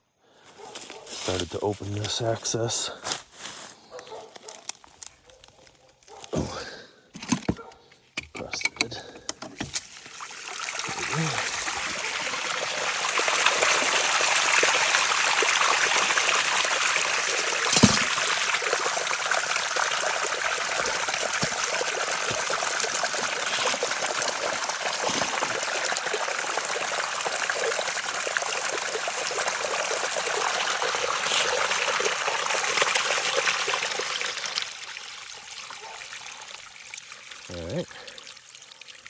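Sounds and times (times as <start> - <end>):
sewage pouring out of a pipe: 9.6 - 39.0.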